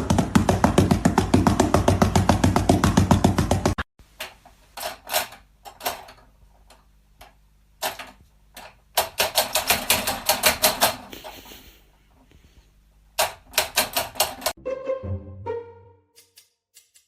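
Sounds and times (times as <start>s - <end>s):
background music: 14.6s - 16.5s.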